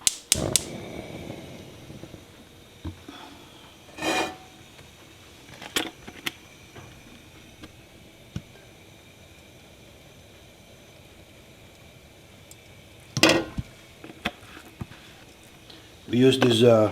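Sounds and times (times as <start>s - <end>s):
cookware scraping: 3.9s - 4.6s
pots and utensils knocking: 4.0s - 4.5s, 13.2s - 13.7s.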